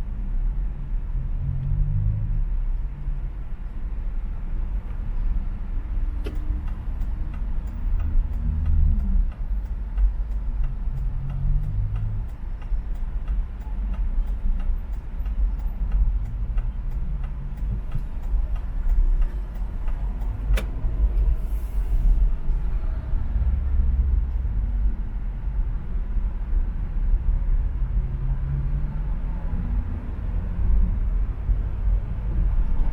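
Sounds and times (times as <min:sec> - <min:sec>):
car road and engine rumble: 0:00.0 - 0:32.9
faint regular ticking: 0:06.0 - 0:21.0.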